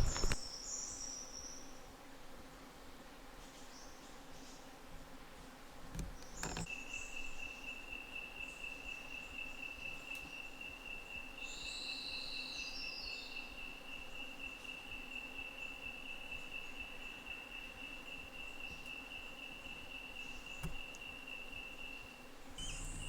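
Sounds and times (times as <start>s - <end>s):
insect trilling: 13.3s - 23.0s
faint clicks: 20.4s - 21.1s.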